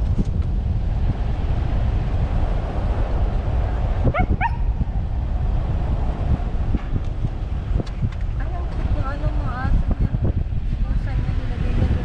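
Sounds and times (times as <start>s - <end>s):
wind rumble on microphone: 0.0s - 12.0s
dog yipping: 4.1s - 4.7s.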